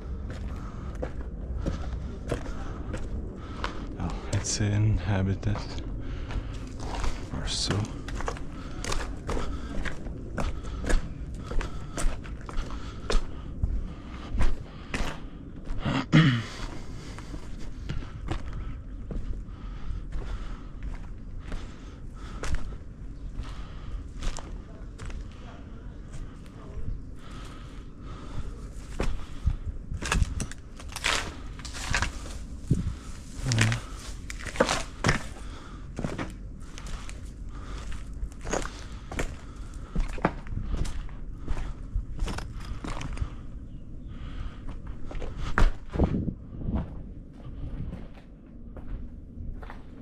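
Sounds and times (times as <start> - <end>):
footsteps walking: 0.0 - 15.8, 16.6 - 43.4, 44.7 - 50.0
scattered crackles: 28.8 - 40.0.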